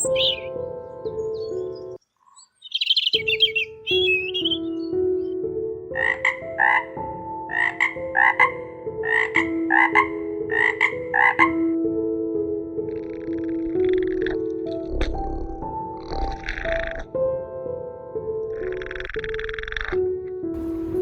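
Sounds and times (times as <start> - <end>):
frog croaking: 5.9 - 11.8, 12.8 - 17.3, 18.3 - 20.9.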